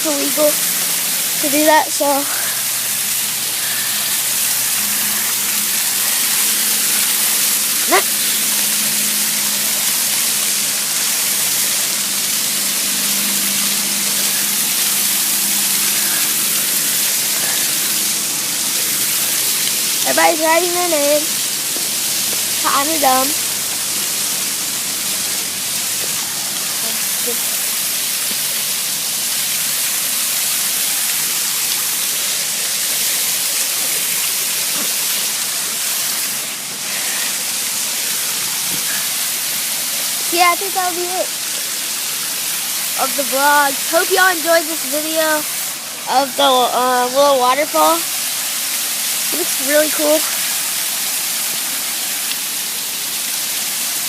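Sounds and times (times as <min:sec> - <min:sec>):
waterfall pouring and splashing: 0:00.0 - 0:54.0.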